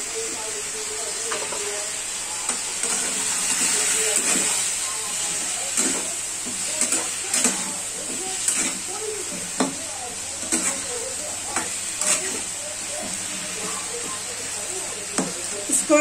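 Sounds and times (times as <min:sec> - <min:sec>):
pumpkin sizzling in oil: 0:00.0 - 0:16.0
spatula scraping and knocking pan: 0:02.5 - 0:14.2.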